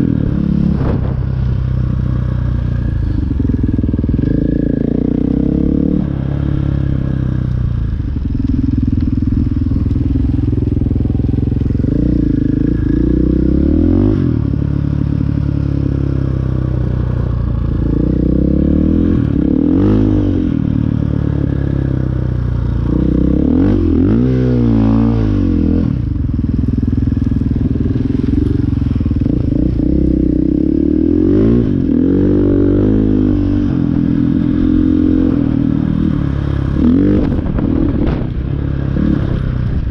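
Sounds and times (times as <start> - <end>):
dirt bike engine revving: 0.0 - 7.2, 27.3 - 39.9.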